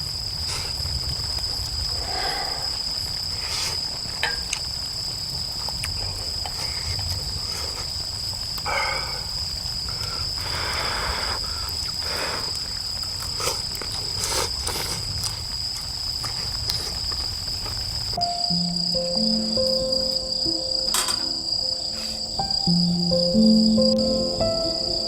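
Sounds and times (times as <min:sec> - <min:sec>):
firewood crackling and popping: 0:00.0 - 0:18.2
crickets trilling: 0:00.0 - 0:25.0.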